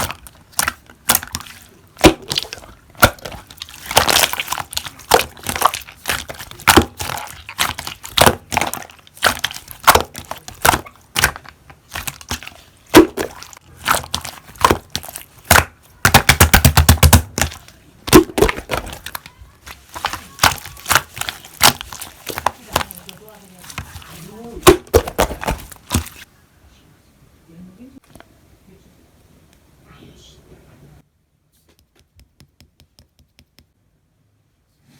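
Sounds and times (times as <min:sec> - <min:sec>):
slime clicking and popping: 0:00.0 - 0:23.2.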